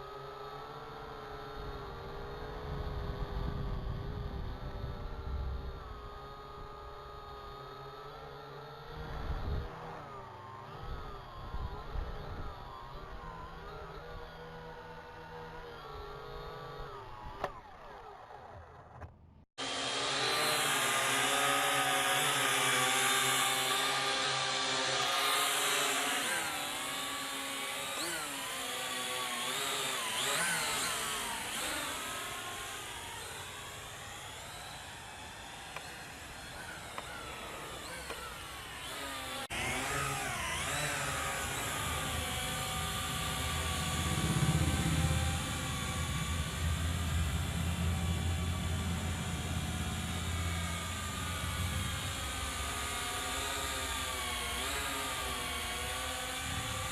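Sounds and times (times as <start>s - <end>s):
drone motors whining: 0.0s - 56.9s
low wind rumble: 2.4s - 6.6s, 41.1s - 52.4s.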